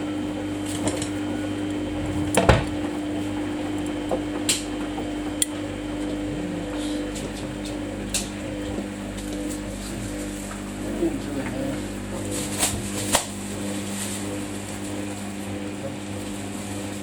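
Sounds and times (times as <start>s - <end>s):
washing machine humming: 0.0s - 17.0s
sharp knocks: 1.9s - 6.0s.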